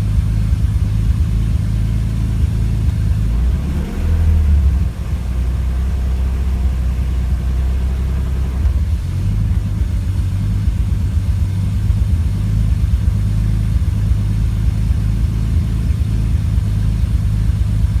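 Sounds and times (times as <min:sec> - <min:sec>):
car engine idling with misfire: 0:00.0 - 0:18.0.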